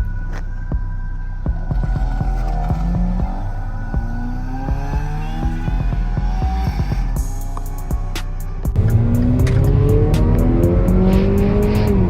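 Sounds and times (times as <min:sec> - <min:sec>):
music with thumping beat: 0:00.0 - 0:12.0
car engine accelerating: 0:01.0 - 0:12.0.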